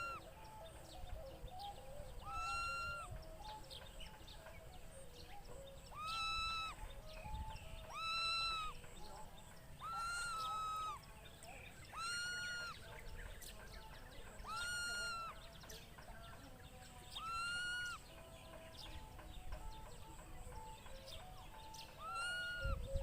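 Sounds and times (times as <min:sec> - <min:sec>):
fainter lower animal calls: 0:00.0 - 0:00.3, 0:02.1 - 0:03.1, 0:05.8 - 0:07.0, 0:07.8 - 0:08.9, 0:09.7 - 0:11.2, 0:11.8 - 0:12.9, 0:14.4 - 0:15.5, 0:17.2 - 0:18.0, 0:21.9 - 0:22.8.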